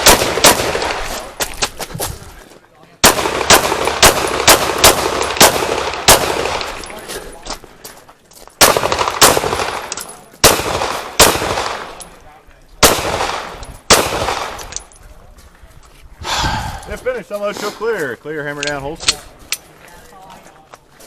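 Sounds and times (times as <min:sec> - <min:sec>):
pistol shots with echo: 0:00.0 - 0:01.1, 0:03.0 - 0:06.9, 0:08.6 - 0:12.1, 0:12.8 - 0:14.8.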